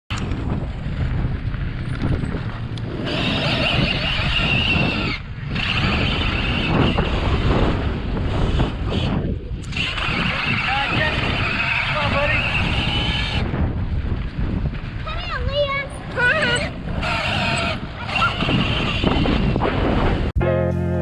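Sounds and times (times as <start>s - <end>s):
motor vehicle rumble: 0.1s - 5.6s, 20.3s - 21.0s.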